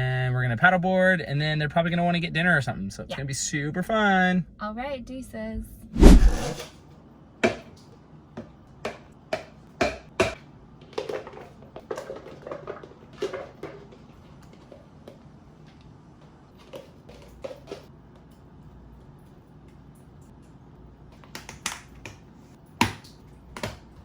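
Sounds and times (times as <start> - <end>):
loud thump: 6.0 - 6.6.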